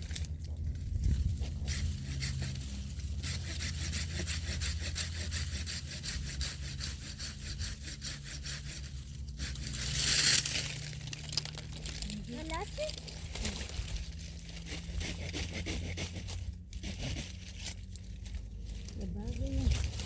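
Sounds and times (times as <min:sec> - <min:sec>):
hand saw cutting wood: 0:01.2 - 0:10.8, 0:13.0 - 0:17.9.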